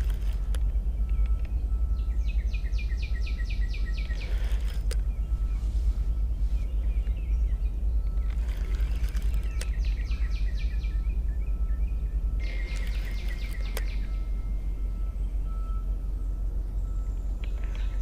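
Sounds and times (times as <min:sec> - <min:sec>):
low outdoor rumble: 0:00.0 - 0:18.0
songbird singing: 0:00.0 - 0:18.0
sharp clicks: 0:08.1 - 0:10.1, 0:12.4 - 0:14.0.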